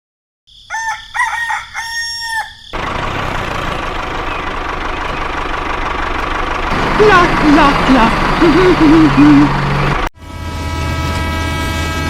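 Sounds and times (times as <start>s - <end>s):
rooster crowing: 0.5s - 2.8s.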